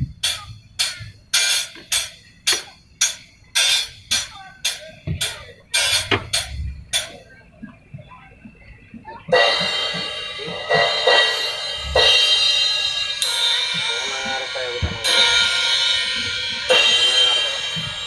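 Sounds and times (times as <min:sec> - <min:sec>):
drum hits: 0:00.0 - 0:07.2, 0:09.3 - 0:18.0
cymbal crash: 0:09.3 - 0:18.0.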